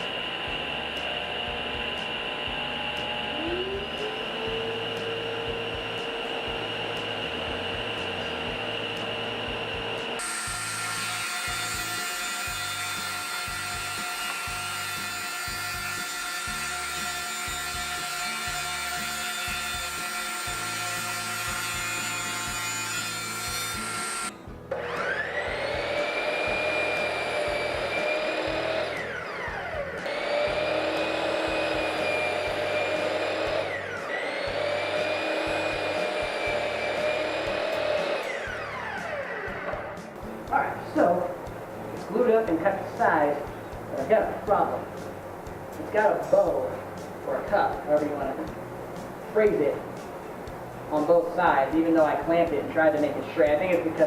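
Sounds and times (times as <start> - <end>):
power saw cutting wood: 0.0 - 45.1.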